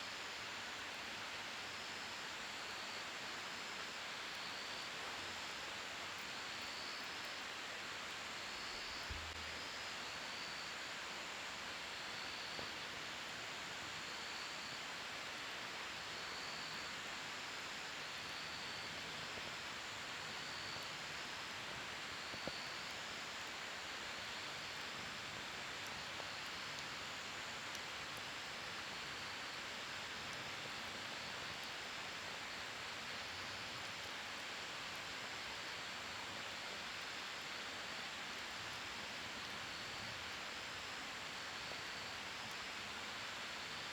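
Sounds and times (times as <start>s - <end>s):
campfire hissing and popping: 0.1s - 43.9s.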